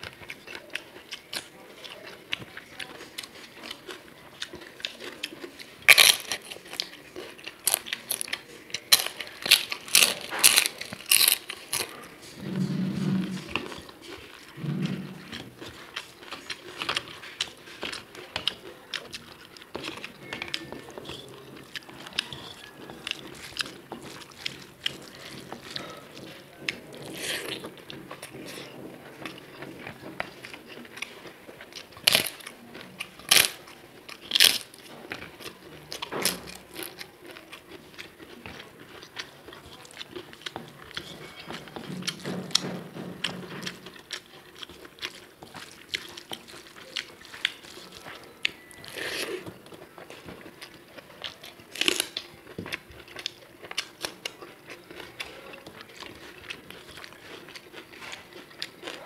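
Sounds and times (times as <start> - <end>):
close chewing with wet clicks: 0.0 - 12.2, 13.5 - 59.0.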